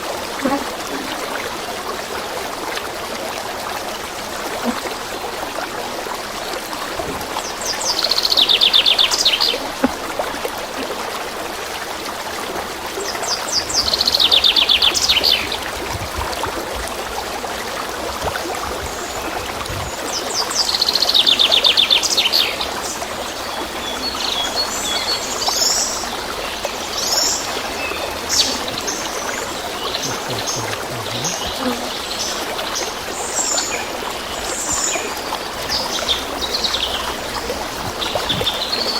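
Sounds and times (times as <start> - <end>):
steady hiss: 22.0 - 38.9.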